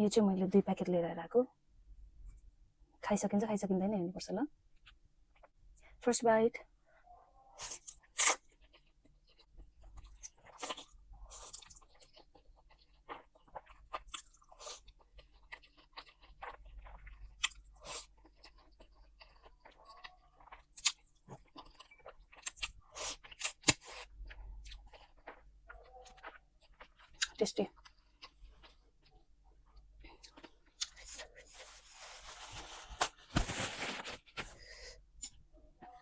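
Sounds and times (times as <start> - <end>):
person chewing food: 7.5 - 33.2.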